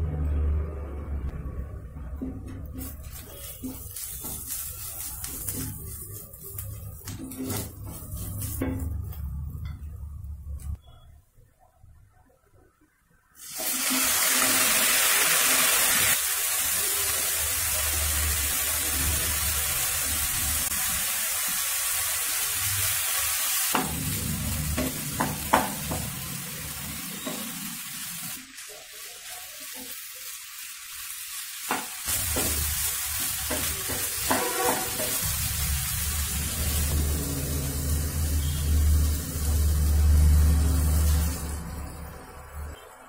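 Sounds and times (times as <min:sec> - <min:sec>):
food sizzling in oil: 0:02.7 - 0:09.2, 0:13.4 - 0:42.9
spatula knocking and scraping pan: 0:07.0 - 0:09.8, 0:24.7 - 0:26.2, 0:31.7 - 0:35.4.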